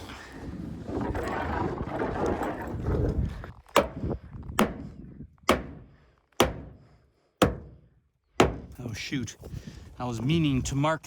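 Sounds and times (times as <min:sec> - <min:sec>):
hammer knocking on wooden panel: 0:05.5 - 0:05.8, 0:06.4 - 0:06.8, 0:07.4 - 0:07.8, 0:08.4 - 0:08.7.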